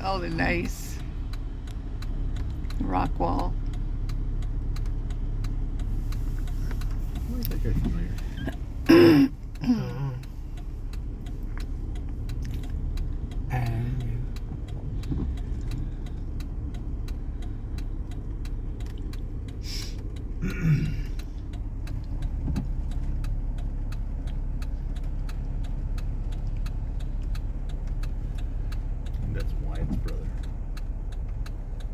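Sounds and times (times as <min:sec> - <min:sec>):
faint regular ticking: 0:00.0 - 0:31.9
low road rumble: 0:00.0 - 0:31.9
passengers murmuring: 0:06.4 - 0:10.3, 0:19.6 - 0:21.2.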